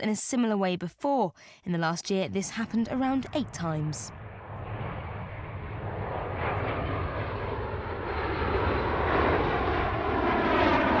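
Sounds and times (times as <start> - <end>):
military aircraft passing overhead: 2.6 - 11.0.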